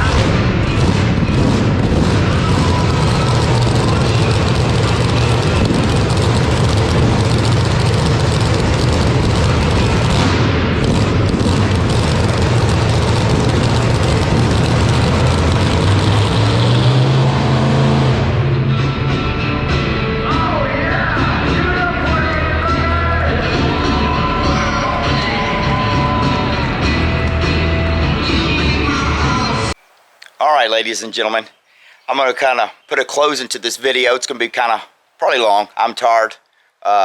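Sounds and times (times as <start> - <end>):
mini bike engines running hard: 0.0 - 17.6.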